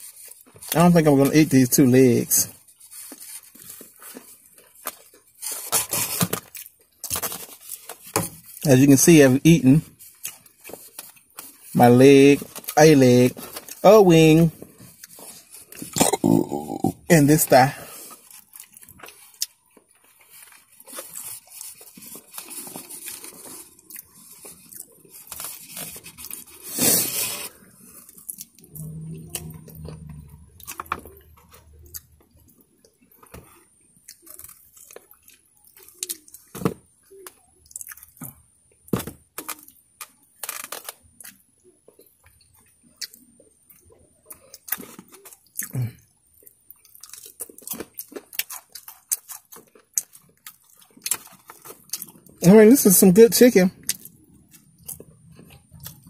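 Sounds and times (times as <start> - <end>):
crunching: 0.0 - 52.4
chewing and lip-smacking: 37.2 - 38.4, 40.9 - 52.4, 53.8 - 56.0.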